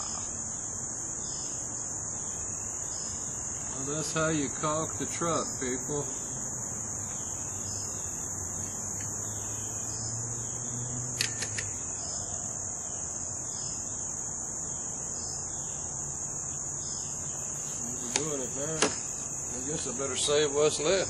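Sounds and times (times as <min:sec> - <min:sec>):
high-pitched insect chorus: 0:00.0 - 0:21.0
quick clicks: 0:11.1 - 0:11.8.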